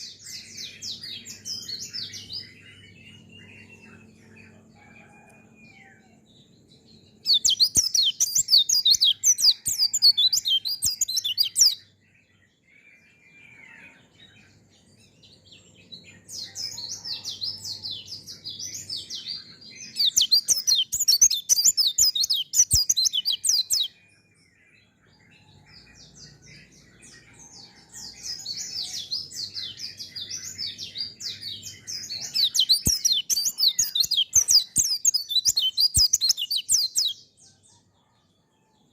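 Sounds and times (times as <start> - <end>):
bird twittering chatter: 30.8 - 37.2.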